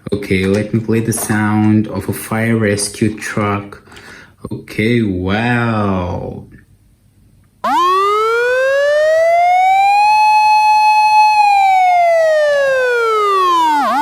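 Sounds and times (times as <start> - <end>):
toy electronic siren wail: 7.6 - 14.0.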